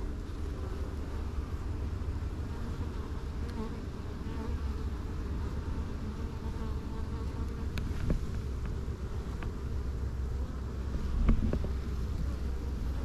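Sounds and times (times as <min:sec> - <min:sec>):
honey bees buzzing: 0:00.0 - 0:13.0.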